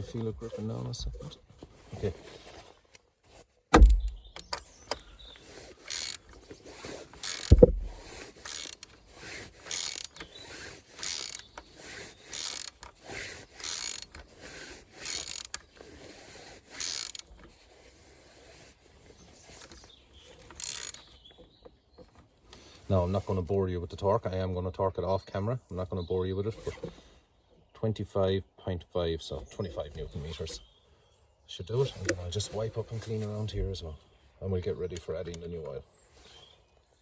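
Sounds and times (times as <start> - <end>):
heavy knocks: 3.8 - 4.2, 7.5 - 8.0
ratchet wrench clicking: 5.8 - 6.2, 7.2 - 8.9, 9.6 - 11.6, 12.3 - 12.9, 13.6 - 14.2, 15.0 - 15.6, 16.7 - 17.3, 20.4 - 21.0.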